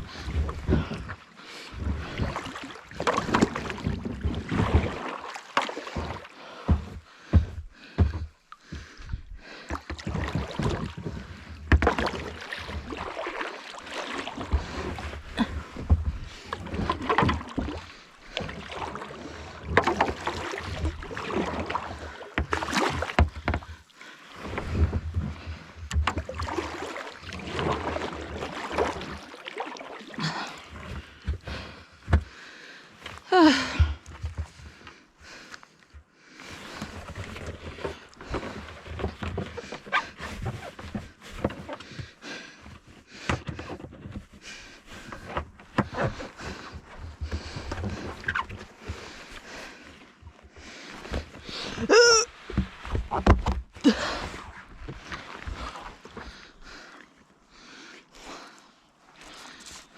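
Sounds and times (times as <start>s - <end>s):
water splashes: 0.0s - 7.4s, 9.5s - 31.8s.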